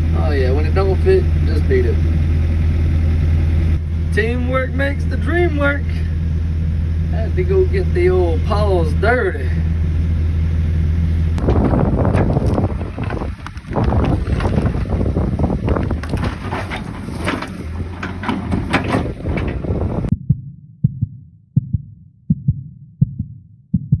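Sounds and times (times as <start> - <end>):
heavy machinery rumbling: 0.0 - 20.1
deep evenly spaced thumps: 0.0 - 24.0
sharp metal knocks and clanks: 15.6 - 20.1.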